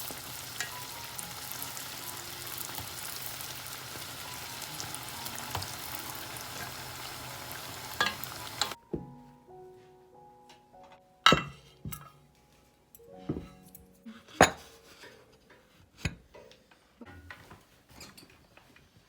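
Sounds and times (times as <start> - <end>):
soft background music: 0.0 - 17.8
dishes and glassware clinking: 8.0 - 8.8, 11.3 - 12.2, 13.2 - 15.2, 17.0 - 18.5.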